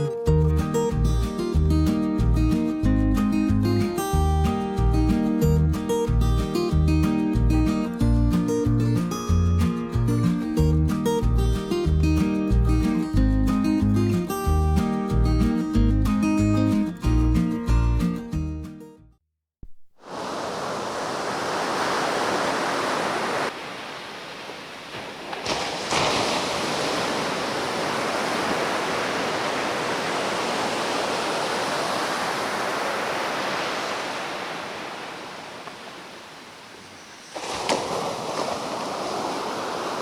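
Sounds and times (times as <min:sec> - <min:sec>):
ocean waves washing on beach: 0:19.6 - 0:40.0.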